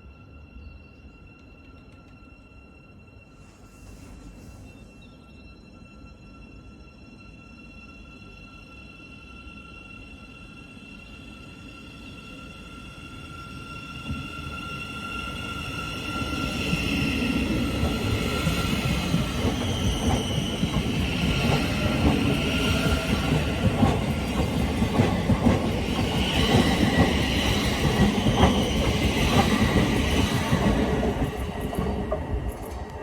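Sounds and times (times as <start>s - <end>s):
train wheels clattering: 16.8s - 33.0s.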